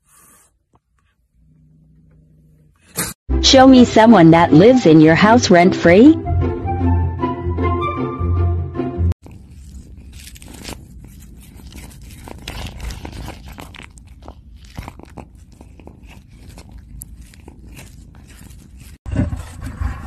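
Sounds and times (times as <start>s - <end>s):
cat chewing and crunching: 9.2s - 19.8s.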